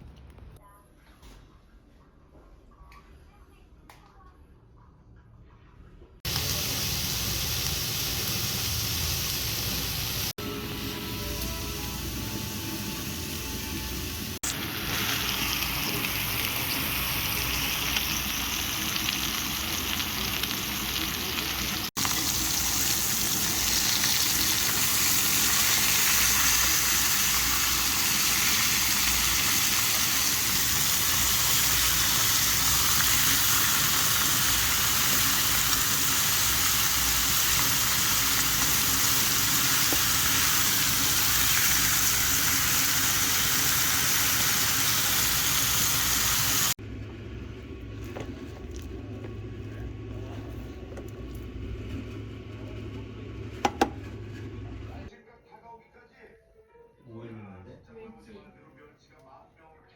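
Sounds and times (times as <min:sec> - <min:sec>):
food sizzling in a hot pan: 0:06.3 - 0:46.8.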